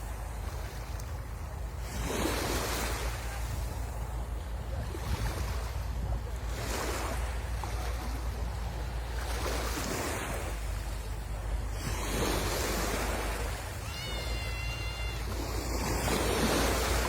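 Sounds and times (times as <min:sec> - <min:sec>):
wind rumble on microphone: 0:00.0 - 0:13.9
sea waves washing on shore: 0:00.0 - 0:17.0.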